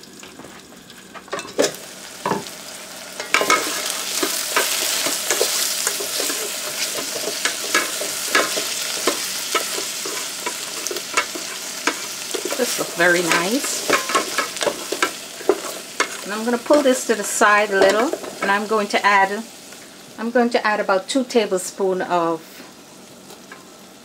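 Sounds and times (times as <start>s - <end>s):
loud frying sizzle: 0.0s - 24.0s
wooden spoon scraping a pot: 3.3s - 16.8s.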